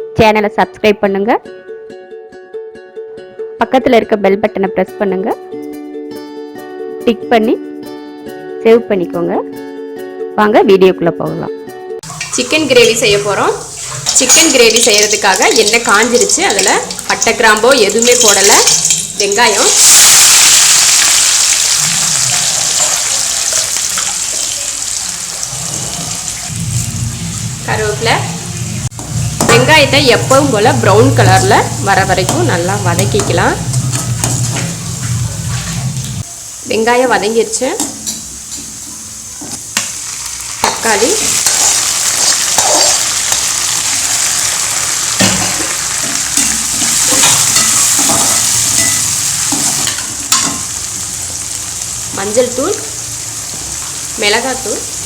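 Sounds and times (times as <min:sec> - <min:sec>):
onions sizzling in oil: 0:12.0 - 0:55.0
spoon stirring and scraping pan: 0:45.4 - 0:50.8.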